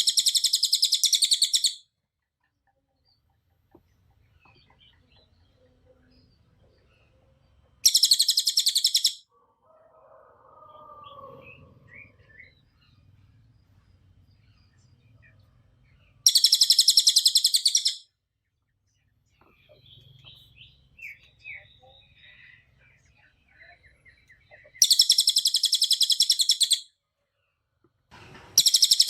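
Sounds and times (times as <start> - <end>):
songbird singing rapid high notes: 0.0 - 1.8, 7.8 - 9.2, 16.2 - 18.0, 19.6 - 26.9, 28.6 - 29.0.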